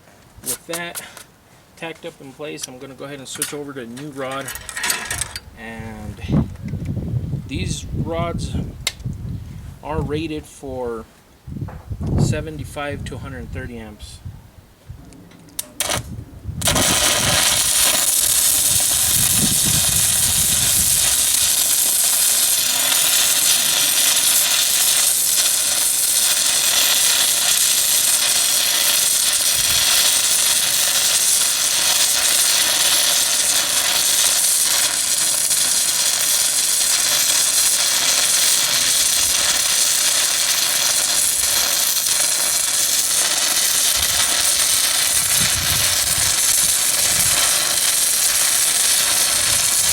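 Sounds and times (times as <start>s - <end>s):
welding arc hissing: 15.6s - 49.9s.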